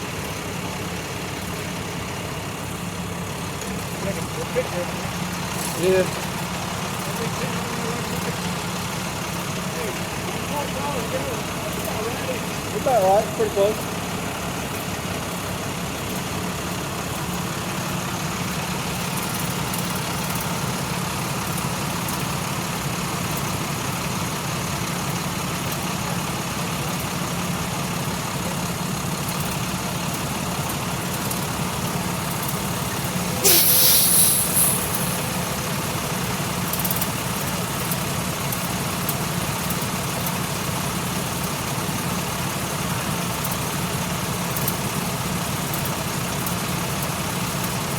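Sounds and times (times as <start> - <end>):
diesel truck engine idling: 0.0 - 47.9
loud air hiss: 32.8 - 36.5.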